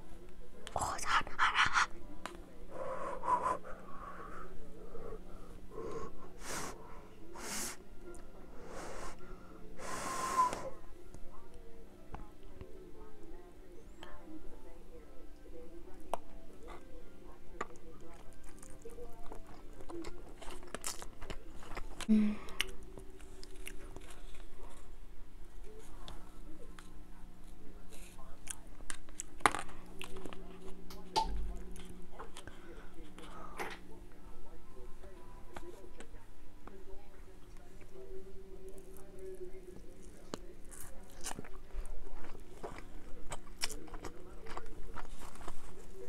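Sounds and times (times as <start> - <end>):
close chewing: 17.6 - 24.9, 25.6 - 31.0, 38.6 - 46.0.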